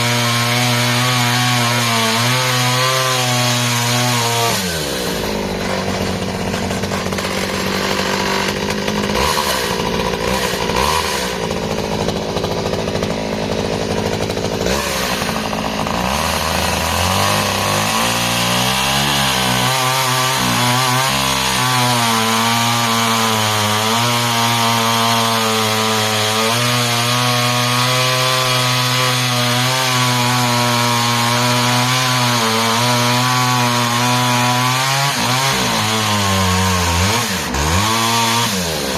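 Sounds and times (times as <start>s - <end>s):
chainsaw cutting timber at high revs: 0.0s - 38.9s.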